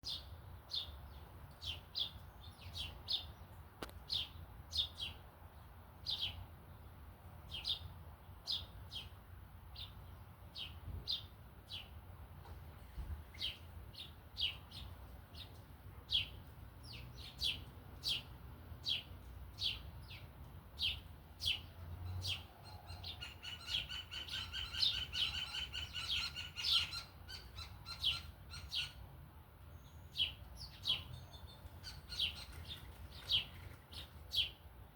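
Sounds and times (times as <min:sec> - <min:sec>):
small birds chirping: 0:00.0 - 0:34.7.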